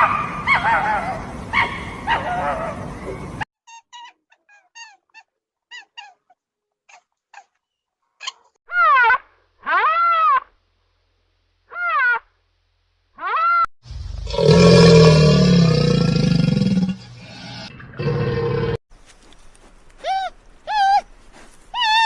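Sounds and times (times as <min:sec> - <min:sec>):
loud rising-and-falling animal calls: 0:13.2 - 0:18.8
rough roar-like animal call: 0:13.9 - 0:18.8
high falling animal chirps: 0:20.0 - 0:22.0.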